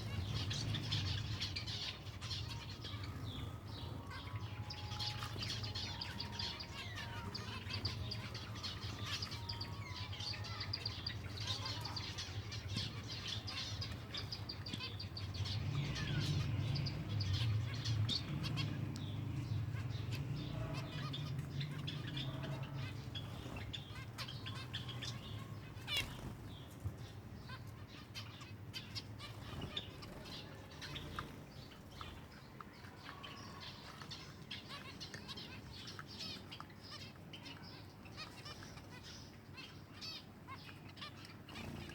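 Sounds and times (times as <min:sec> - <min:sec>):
sparrows chirping: 0:00.0 - 0:41.9
wings fluttering: 0:25.8 - 0:26.8.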